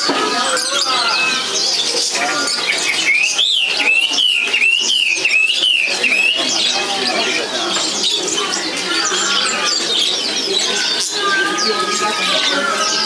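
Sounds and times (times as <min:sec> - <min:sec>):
songbirds chirping and singing: 0:00.0 - 0:13.0
bird whistled phrase: 0:00.6 - 0:06.7.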